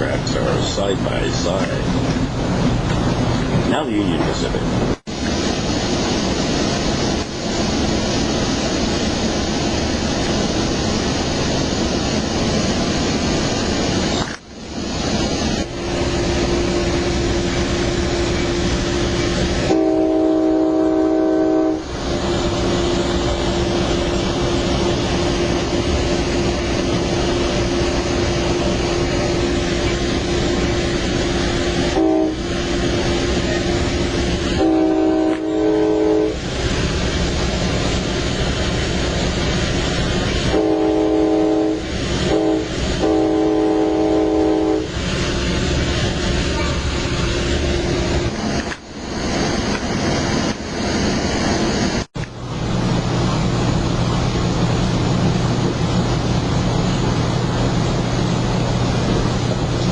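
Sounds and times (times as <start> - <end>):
moving train running noise: 0.0 - 59.9
locomotive horn chord: 19.6 - 21.9, 31.9 - 32.5, 34.5 - 36.4, 40.5 - 44.9.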